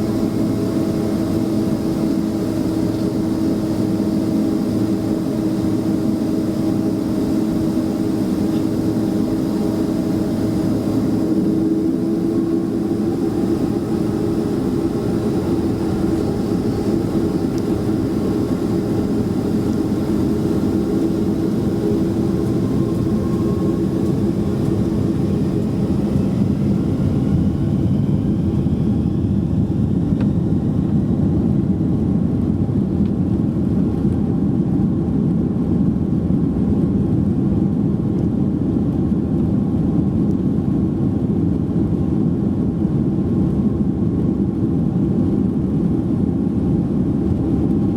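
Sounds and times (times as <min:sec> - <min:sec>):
faint rising whine: 0:00.0 - 0:32.4
airplane cabin engine drone: 0:00.0 - 0:47.9.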